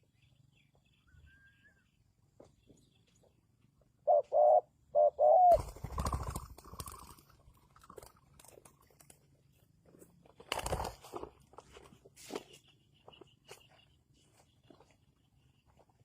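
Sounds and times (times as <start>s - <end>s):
dove cooing: 4.0s - 7.0s.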